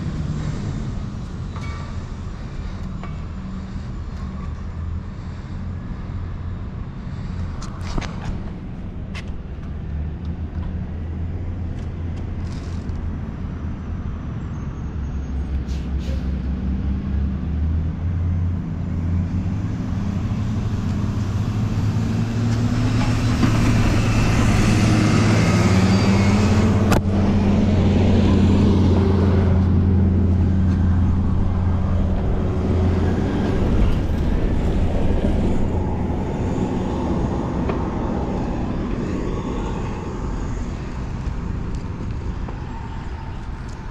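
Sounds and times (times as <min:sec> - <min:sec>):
traffic engine hum: 0:00.0 - 0:43.9.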